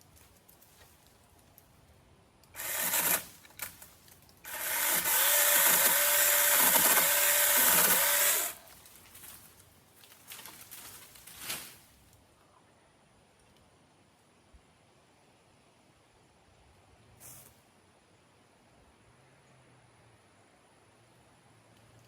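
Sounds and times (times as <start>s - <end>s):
rustling: 0.0s - 2.0s, 2.6s - 12.2s
electric power tool motor under load: 2.6s - 3.3s, 4.5s - 8.6s.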